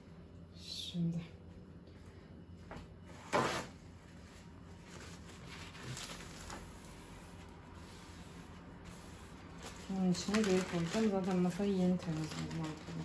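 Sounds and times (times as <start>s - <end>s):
packets rustling: 9.6s - 13.0s.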